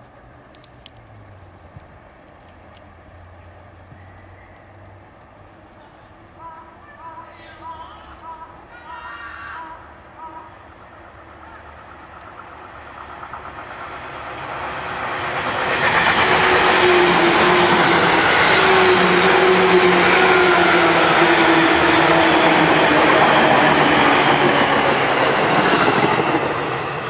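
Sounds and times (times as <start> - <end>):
train wheels clattering on rails: 11.8 - 27.0.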